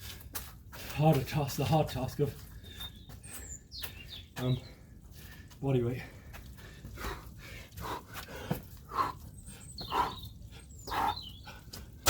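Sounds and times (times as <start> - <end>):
man breathing hard: 4.6 - 12.0.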